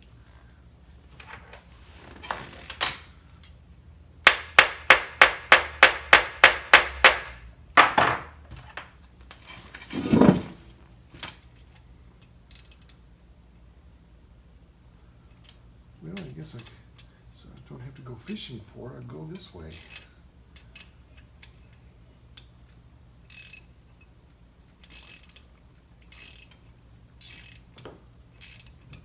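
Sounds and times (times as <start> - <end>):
small hammer tapping on metal: 4.3 - 7.4.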